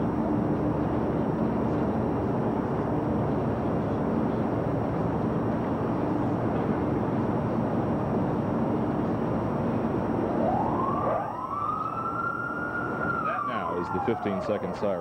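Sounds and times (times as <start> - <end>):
outdoor background noise: 0.0 - 15.0
warning siren wailing: 10.2 - 15.0.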